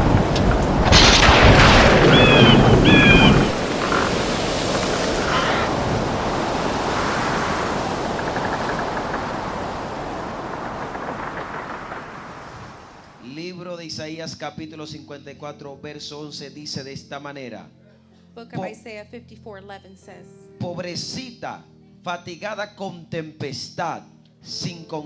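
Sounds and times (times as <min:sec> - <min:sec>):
steady rain: 0:00.0 - 0:13.2
thunder rumbling: 0:00.0 - 0:13.2.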